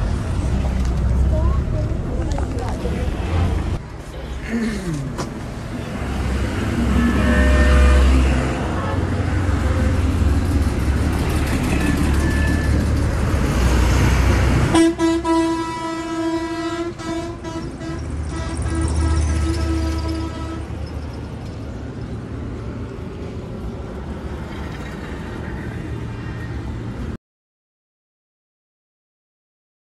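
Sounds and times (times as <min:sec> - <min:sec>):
bus engine rumbling: 0:00.0 - 0:27.2
short horn toots: 0:06.9 - 0:09.0
long vehicle horn blast: 0:06.9 - 0:09.2, 0:14.7 - 0:20.7.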